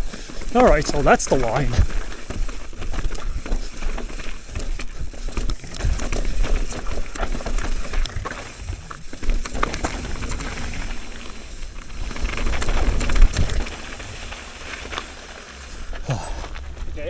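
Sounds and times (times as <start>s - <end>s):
bike chain and frame rattling: 0.0s - 17.0s
bike tyres crunching over dirt: 0.0s - 17.0s
wind rumbling on microphone: 4.9s - 14.5s.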